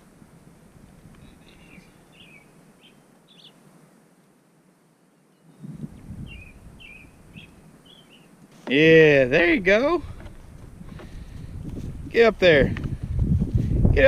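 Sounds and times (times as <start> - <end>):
small birds chirping: 1.0 - 3.6, 5.1 - 11.8.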